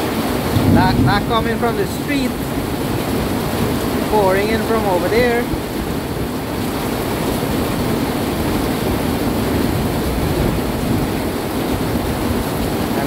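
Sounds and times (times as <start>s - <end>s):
heavy rain pouring: 0.0s - 13.0s
low rumble: 0.5s - 3.1s.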